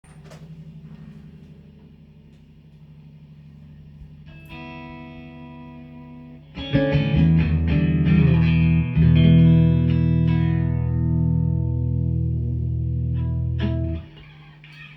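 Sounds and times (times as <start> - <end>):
electric guitar drone: 4.0 - 14.9
sustained guitar chord: 4.2 - 14.4
distorted electric guitar playing: 4.2 - 14.9.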